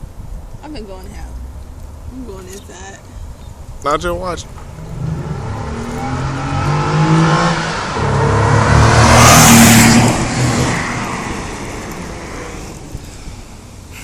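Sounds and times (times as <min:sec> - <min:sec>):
car accelerating past: 0:04.6 - 0:12.9.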